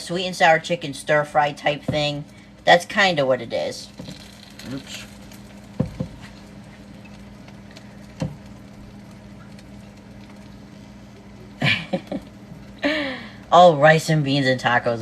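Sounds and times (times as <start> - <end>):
woman's voice: 0.0 - 4.0, 13.5 - 15.0
low hum: 0.0 - 15.0.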